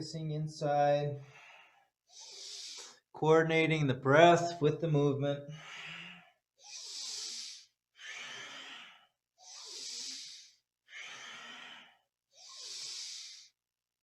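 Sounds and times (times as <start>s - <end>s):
deep breaths through the nose: 1.2s - 3.0s, 5.5s - 13.6s.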